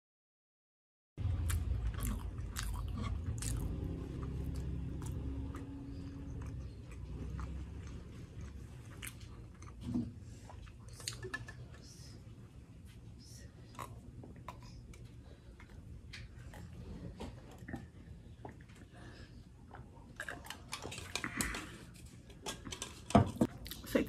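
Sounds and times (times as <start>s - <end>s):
low rumble: 1.2s - 9.0s
crunchy chewing: 1.2s - 11.2s.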